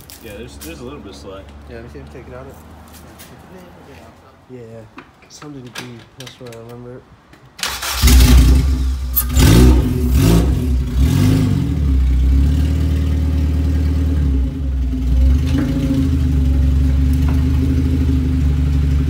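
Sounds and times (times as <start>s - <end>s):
car engine revving and idling: 8.0s - 19.0s.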